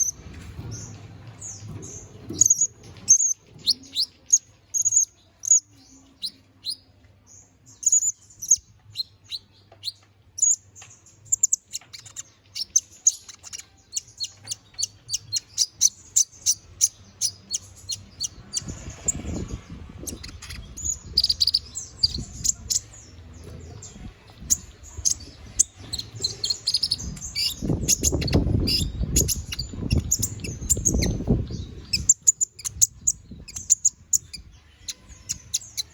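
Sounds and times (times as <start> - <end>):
canary singing: 0.0 - 35.9
low rumbling noise: 16.6 - 32.3.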